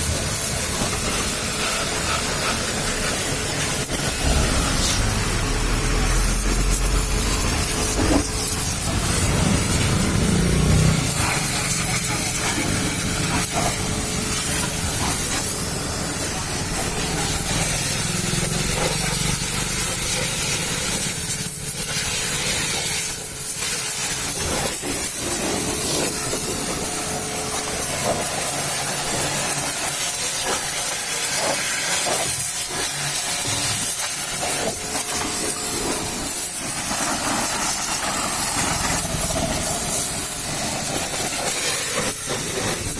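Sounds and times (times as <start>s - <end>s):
pressure washer spraying: 0.0s - 42.9s
low rumble: 4.0s - 10.3s.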